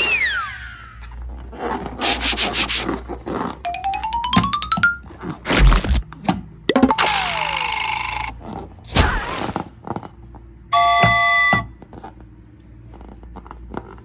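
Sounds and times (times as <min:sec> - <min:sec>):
bell-like chime: 0:03.7 - 0:05.1
cartoon thump: 0:05.5 - 0:06.0, 0:08.9 - 0:09.6.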